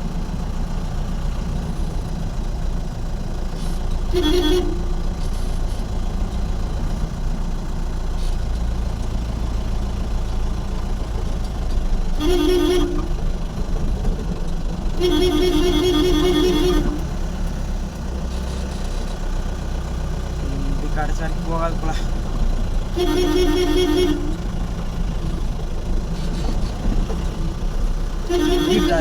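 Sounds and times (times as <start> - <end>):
vehicle engine and road noise: 0.0 - 29.0
two-tone vehicle horn: 4.1 - 5.2, 12.2 - 13.3, 15.0 - 17.4, 22.8 - 24.8, 28.2 - 29.0.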